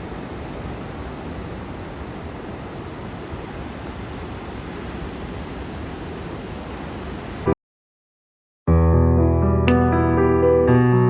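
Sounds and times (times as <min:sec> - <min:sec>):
ocean surf: 0:00.0 - 0:07.5.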